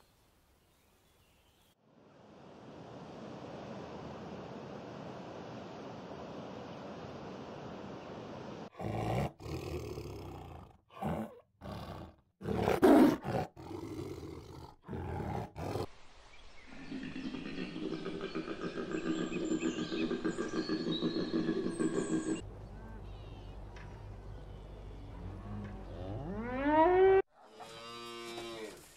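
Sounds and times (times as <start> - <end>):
wind and surf: 1.9 - 8.7
tiger roaring and growling: 8.8 - 15.9.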